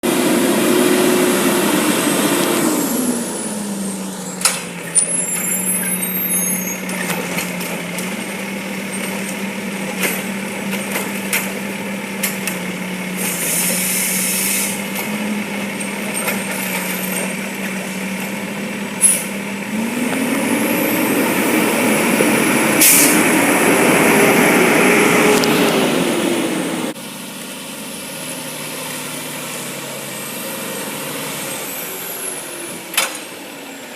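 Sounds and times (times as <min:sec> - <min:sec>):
diesel truck engine revving and idling: 0:00.0 - 0:33.9
air brake hisses: 0:13.2 - 0:14.8, 0:22.8 - 0:23.3.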